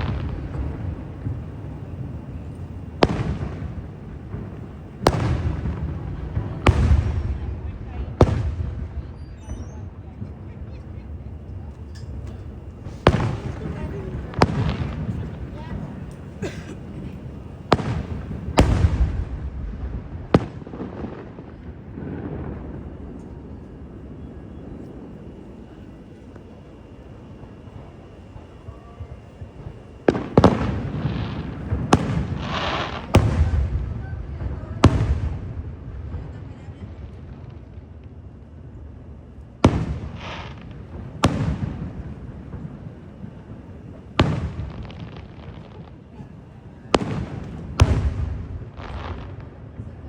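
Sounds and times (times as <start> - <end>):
rolling boom: 0.0 - 37.8
fireworks bursting: 0.0 - 50.0.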